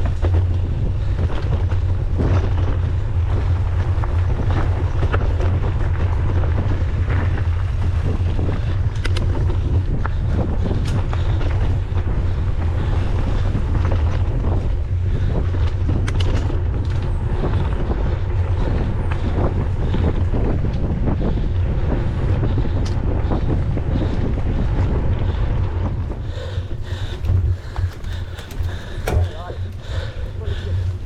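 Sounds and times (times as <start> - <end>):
wind buffeting microphone: 0.0 - 31.0
sharp clicks: 26.1 - 31.0.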